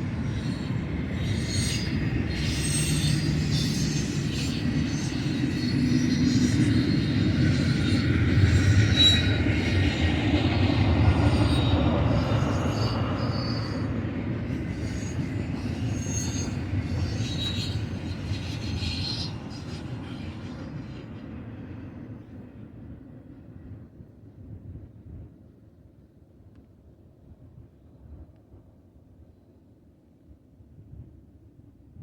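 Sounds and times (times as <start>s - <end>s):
freight train rumbling past: 0.0s - 24.0s
high wheel squeals: 0.2s - 10.0s, 11.2s - 19.5s.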